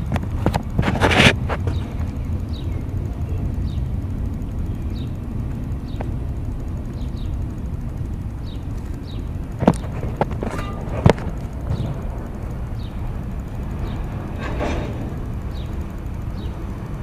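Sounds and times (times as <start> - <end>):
train rumbling along track: 0.0 - 17.0
sharp metal clanks: 9.6 - 13.1, 13.8 - 15.8.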